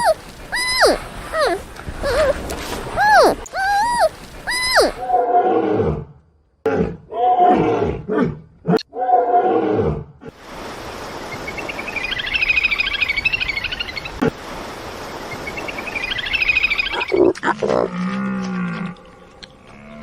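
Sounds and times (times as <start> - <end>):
fast pulsing chirr: 0.0 - 2.4
steady hiss: 0.0 - 5.1, 10.4 - 17.0.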